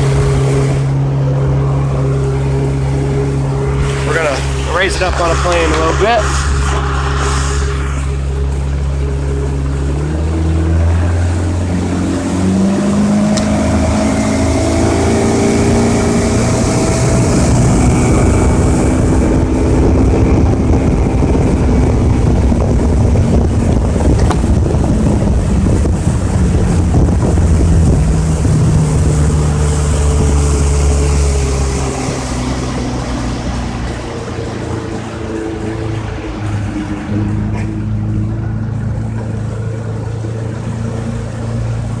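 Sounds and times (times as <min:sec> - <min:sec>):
outboard motor revving: 0:00.0 - 0:42.0
water noise against hull: 0:00.0 - 0:42.0.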